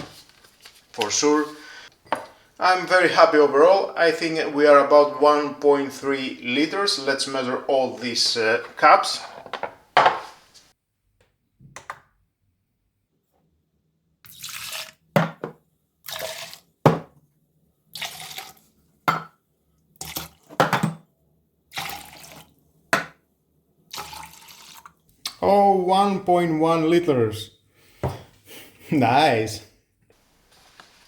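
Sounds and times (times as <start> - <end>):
coffee pouring into a jug: 14.3 - 15.1, 16.1 - 16.7, 18.0 - 18.7, 20.0 - 20.5, 21.7 - 22.6, 23.9 - 25.1.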